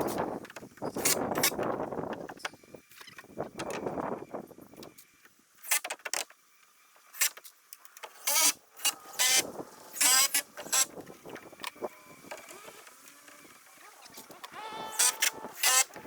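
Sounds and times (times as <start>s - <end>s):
small motor whirring: 6.5s - 16.0s.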